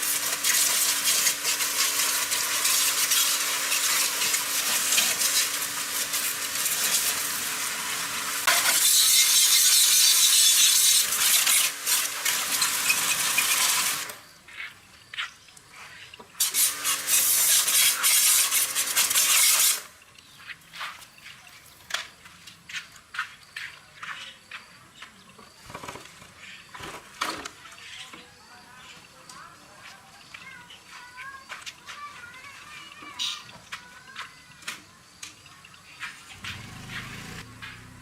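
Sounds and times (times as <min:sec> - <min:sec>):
high-pressure spray hissing: 0:00.0 - 0:14.2, 0:16.4 - 0:19.9
low motor hum: 0:36.3 - 0:38.0.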